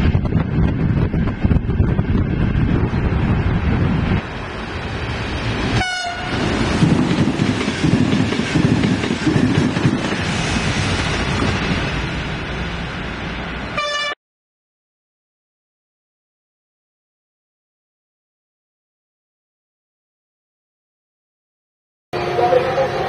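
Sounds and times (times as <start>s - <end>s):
train wheels rumbling on rails: 0.0s - 13.8s
train horn toots: 5.8s - 6.4s, 13.8s - 14.2s, 22.2s - 23.0s.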